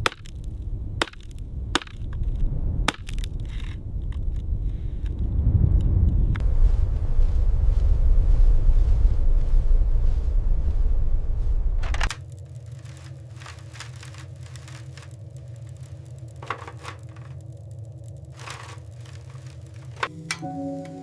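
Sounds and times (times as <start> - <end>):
scattered clicks and crackles: 0.0 - 6.4, 11.8 - 20.4
low wind rumble: 0.0 - 20.3
low steady hum: 0.0 - 21.0.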